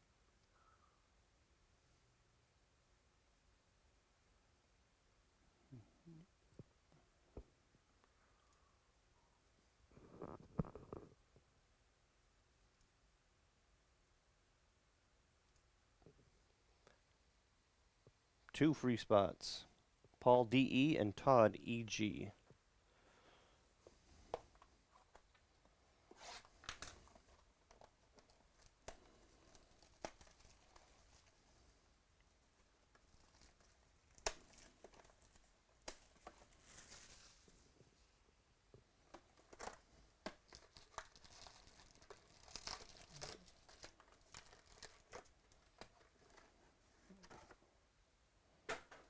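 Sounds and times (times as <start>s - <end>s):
wrappers tearing and crinkling: 26.2s - 31.4s, 32.9s - 37.5s, 39.4s - 46.5s.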